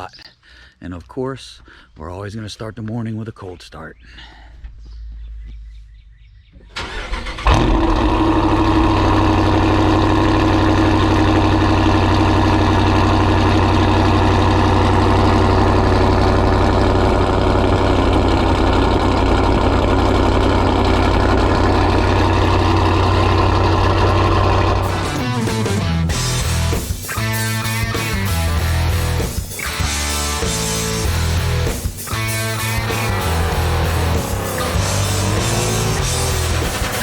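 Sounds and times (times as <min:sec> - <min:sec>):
starter motor cranking: 0:06.8 - 0:25.4
car engine idling loudly: 0:07.2 - 0:37.0.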